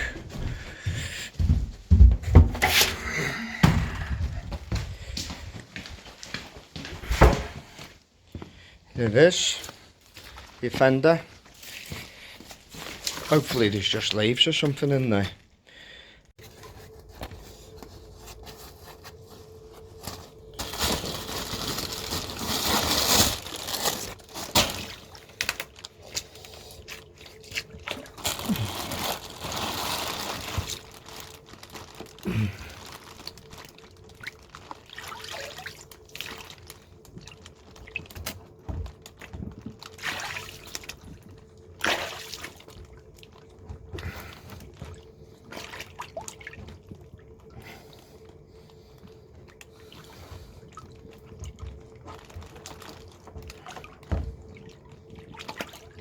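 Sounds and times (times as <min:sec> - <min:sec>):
faint steady hum: 0:11.2 - 0:56.0
dirty water splashing in a drain: 0:33.2 - 0:47.7, 0:49.5 - 0:56.0.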